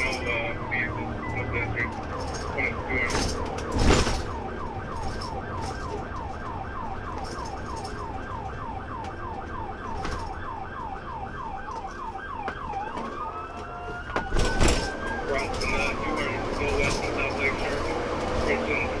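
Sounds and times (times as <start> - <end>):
engine and road rumble: 0.0 - 19.0
police siren: 0.0 - 19.0.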